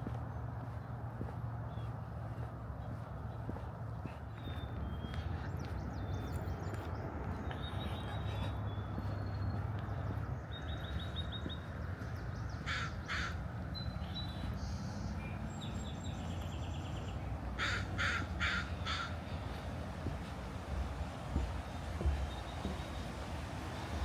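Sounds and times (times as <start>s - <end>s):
crow cawing: 12.6s - 13.4s, 17.6s - 19.2s.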